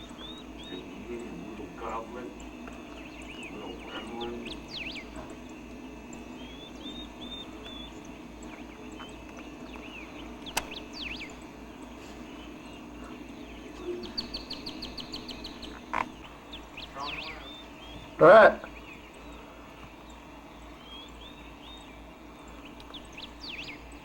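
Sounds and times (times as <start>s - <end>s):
bird trill: 0.0s - 24.0s
low steady hum: 0.0s - 24.0s
small birds chirping: 0.0s - 24.0s
sharp click: 10.4s - 10.8s.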